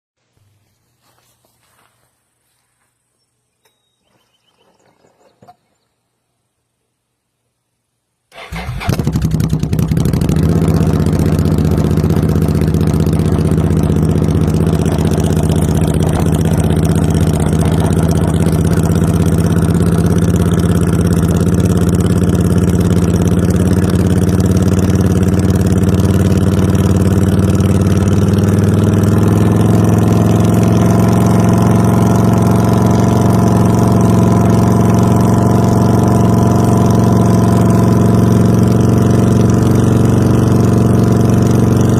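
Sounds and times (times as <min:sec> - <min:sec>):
motorcycle engine starting and idling: 0:08.3 - 0:41.9.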